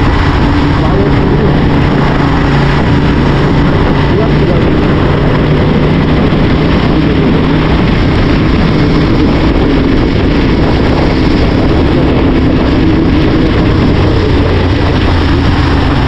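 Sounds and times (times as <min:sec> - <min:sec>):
motorcycle engine running: 0:00.0 - 0:16.0
wind rush on microphone: 0:00.0 - 0:16.0.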